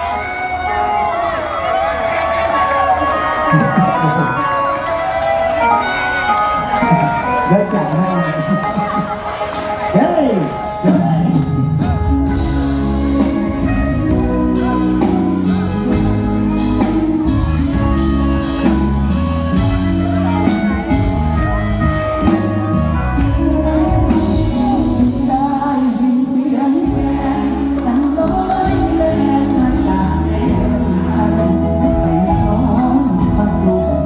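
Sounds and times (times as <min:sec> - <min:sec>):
live band music: 0:00.0 - 0:34.0
person singing: 0:10.1 - 0:34.0
steady drum beat: 0:11.0 - 0:25.6.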